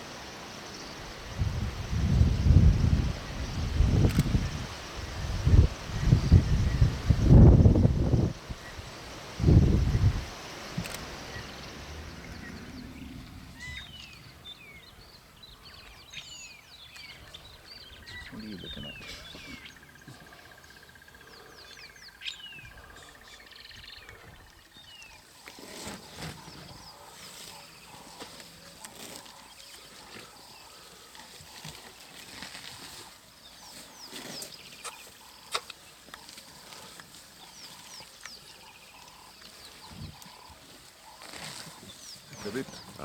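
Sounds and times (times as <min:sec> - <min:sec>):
insect trill: 0:00.0 - 0:43.0
bird chirps: 0:09.7 - 0:25.3
sharp clicks: 0:10.8 - 0:11.6.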